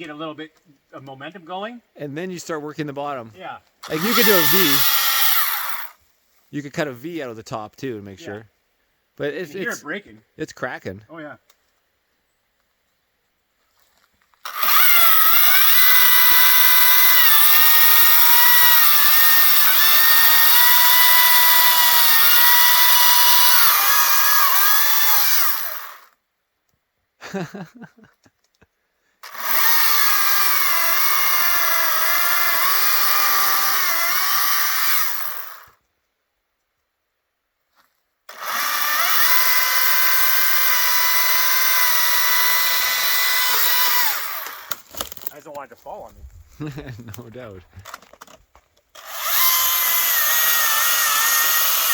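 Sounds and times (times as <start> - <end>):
electric chainsaw cutting wood: 3.8 - 6.0, 14.4 - 26.2, 29.2 - 35.8, 38.3 - 45.3, 47.8 - 51.9.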